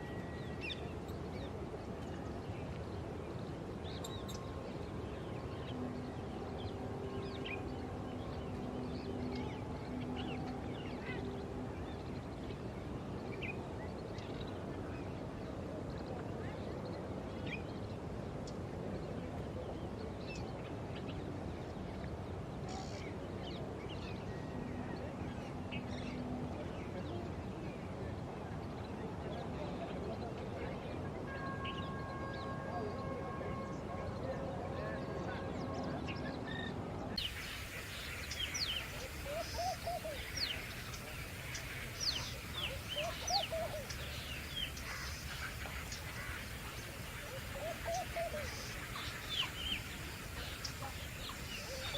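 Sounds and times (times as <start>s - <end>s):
low background noise: 0.0s - 51.9s
birds chirping and calling: 36.5s - 51.9s.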